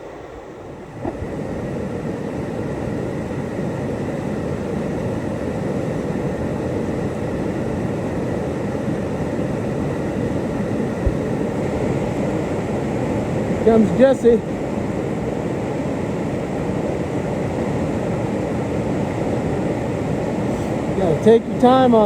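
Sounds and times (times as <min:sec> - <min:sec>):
dull thump: 0:11.0 - 0:11.4.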